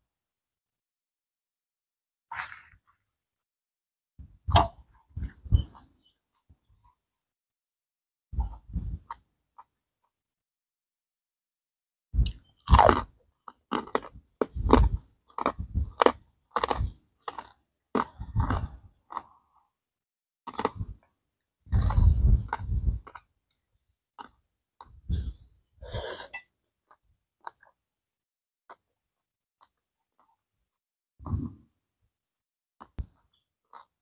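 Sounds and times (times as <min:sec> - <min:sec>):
wet chewing and crunching: 0:12.2 - 0:19.5, 0:20.5 - 0:21.1, 0:21.7 - 0:23.6, 0:32.8 - 0:34.0.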